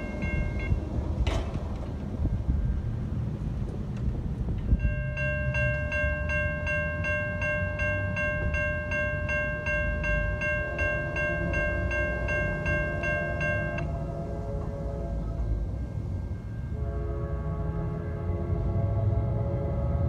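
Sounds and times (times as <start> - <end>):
train rumbling past: 0.0 - 20.0.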